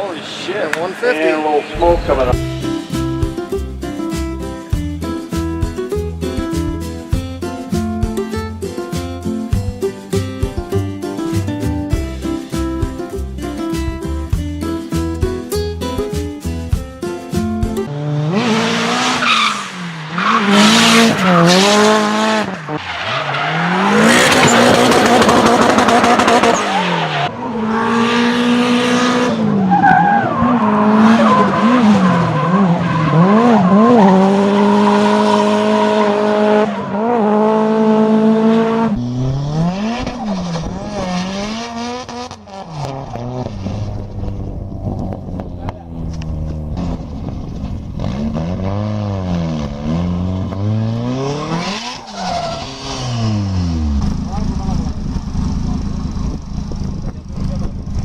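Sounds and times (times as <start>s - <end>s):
car engine revving: 1.4s - 3.7s, 17.9s - 58.0s
tyre squeal: 51.2s - 53.7s.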